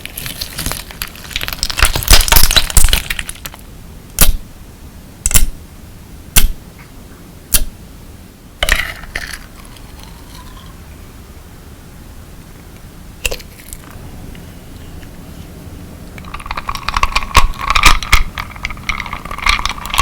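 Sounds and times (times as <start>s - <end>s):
slime crackling and crunching: 0.0s - 3.6s
sharp slime pops: 4.2s - 4.4s, 5.2s - 5.6s, 6.4s - 6.6s.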